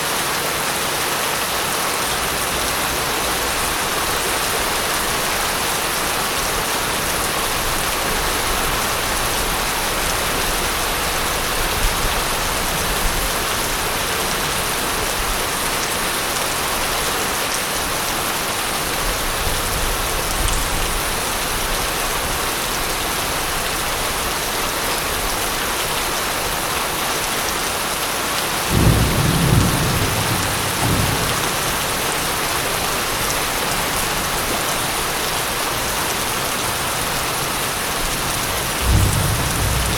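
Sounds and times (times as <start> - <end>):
heavy rain falling: 0.0 - 39.9
thunder rumbling: 28.7 - 32.8, 38.8 - 39.9.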